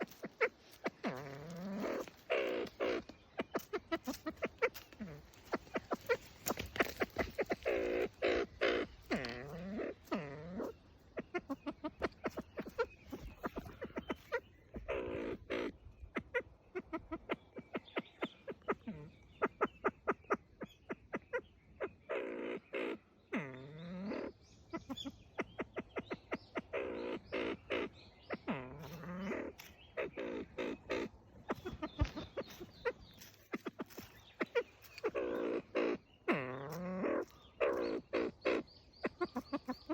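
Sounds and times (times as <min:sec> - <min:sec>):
pheasant clucking and calling: 0:00.0 - 0:39.9.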